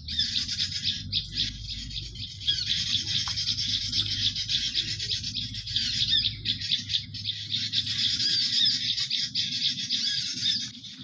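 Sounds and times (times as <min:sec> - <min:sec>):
rapid high-pitched bird chirping: 0:00.0 - 0:11.0.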